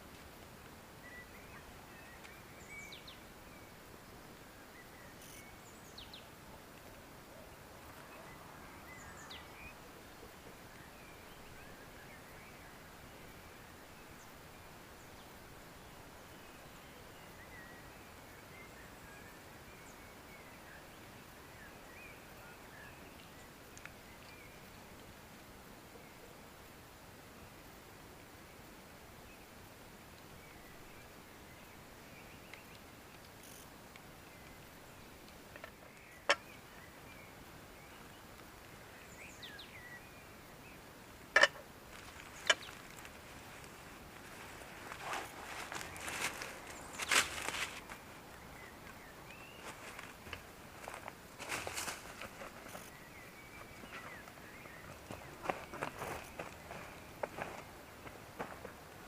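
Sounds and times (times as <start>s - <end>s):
steady outdoor hiss: 0.0s - 59.0s
distant bird chirps: 30.5s - 57.7s.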